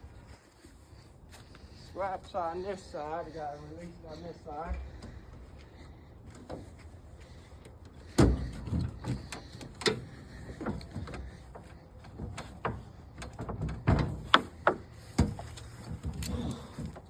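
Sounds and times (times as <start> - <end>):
scrap metal knocks and clunks: 8.0 - 17.0.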